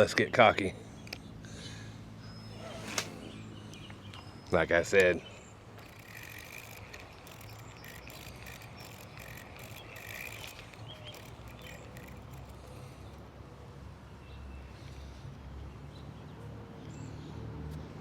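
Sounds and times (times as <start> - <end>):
high chirping calls: 2.2 - 13.1
faint clicks: 5.8 - 13.2.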